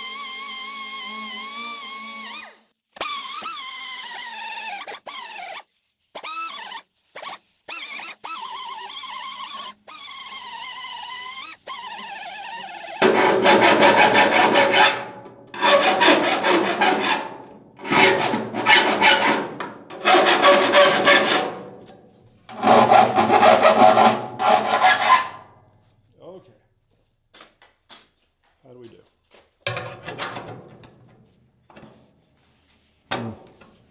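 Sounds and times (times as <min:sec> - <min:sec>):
power tool rasping on sheet steel: 0:00.0 - 0:25.6.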